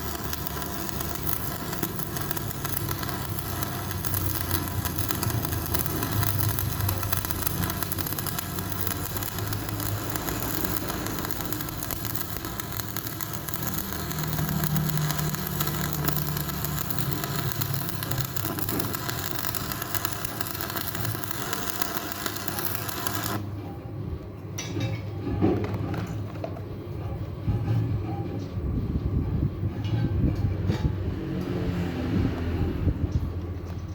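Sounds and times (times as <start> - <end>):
arc welding crackling hiss: 0.0 - 23.5
machinery humming: 0.0 - 24.0.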